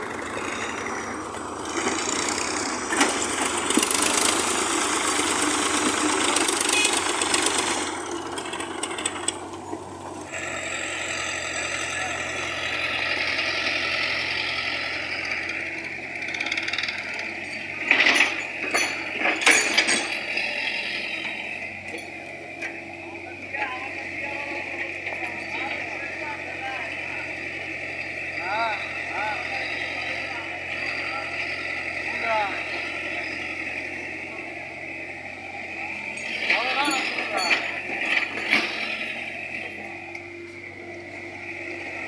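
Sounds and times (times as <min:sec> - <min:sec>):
heavy machinery engine running: 0:00.0 - 0:42.0.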